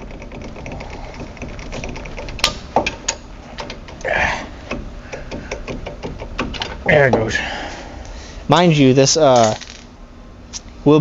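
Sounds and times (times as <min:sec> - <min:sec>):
ratchet clicking: 0:00.0 - 0:06.9
sharp knocks on metal: 0:04.7 - 0:07.3
metal tools clinking: 0:09.3 - 0:09.8.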